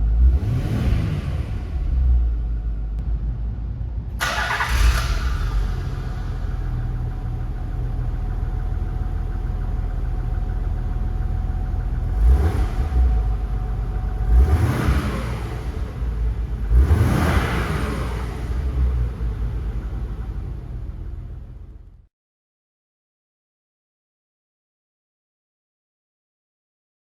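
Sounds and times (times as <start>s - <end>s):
car engine revving: 0.0s - 2.6s, 4.2s - 22.0s
car engine idling: 1.6s - 22.1s.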